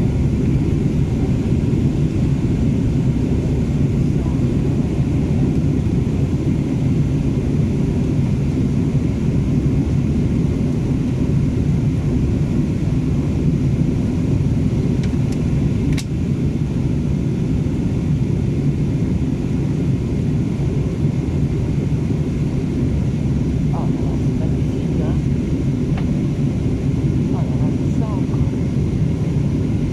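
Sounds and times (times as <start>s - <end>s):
airliner cabin roar: 0.0s - 29.9s
sharp click: 15.9s - 16.1s.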